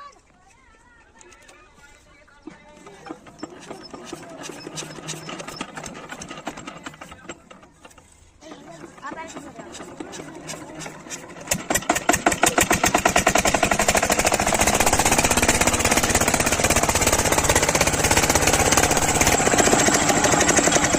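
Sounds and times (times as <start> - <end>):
diesel engine starting up: 2.7 - 20.9.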